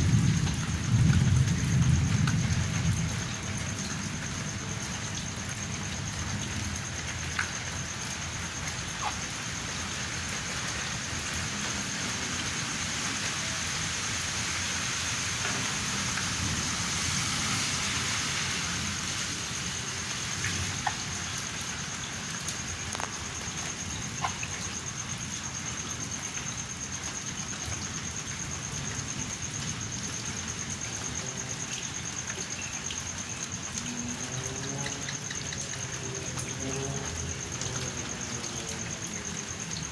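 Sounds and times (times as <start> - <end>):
heavy rain pouring: 0.0 - 39.9
raindrops ticking on something: 0.0 - 39.9.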